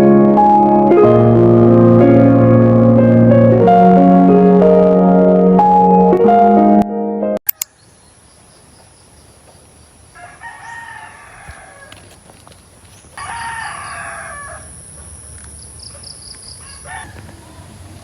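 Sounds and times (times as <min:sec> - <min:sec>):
rooster crowing: 0:10.1 - 0:12.2, 0:13.2 - 0:15.1, 0:16.6 - 0:18.0.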